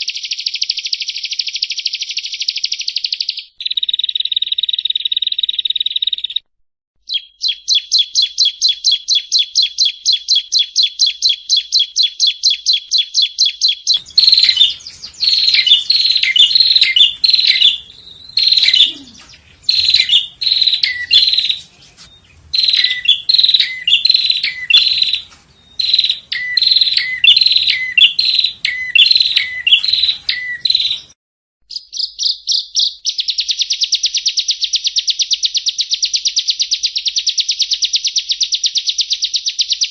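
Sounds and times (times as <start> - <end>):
bird singing trills: 7.0 - 39.9.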